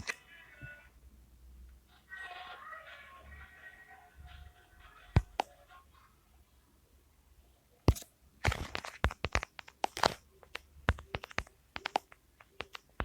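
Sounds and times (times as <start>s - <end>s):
sharp clicks and taps: 7.9s - 13.0s.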